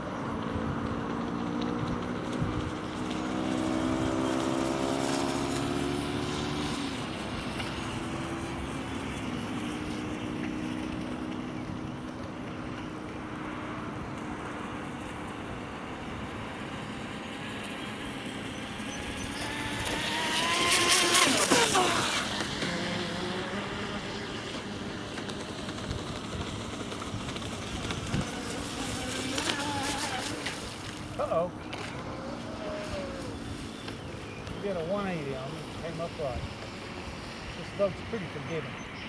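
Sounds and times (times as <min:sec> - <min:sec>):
electric motor whine of rc boat: 0:00.0 - 0:39.0
hull cutting through water: 0:00.0 - 0:39.0.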